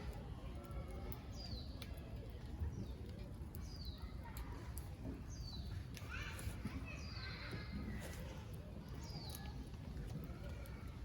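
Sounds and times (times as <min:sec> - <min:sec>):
wood fire crackling and popping: 0:08.0 - 0:11.0.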